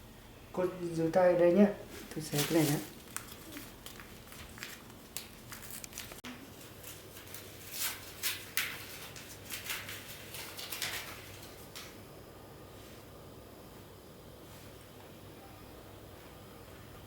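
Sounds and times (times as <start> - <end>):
bandage ripping and rustling: 2.3 - 11.6.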